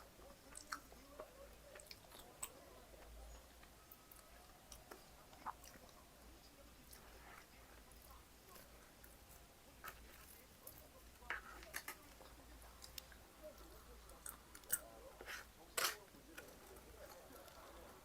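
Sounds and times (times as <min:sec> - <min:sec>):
chewing with crunches: 0:00.3 - 0:18.0.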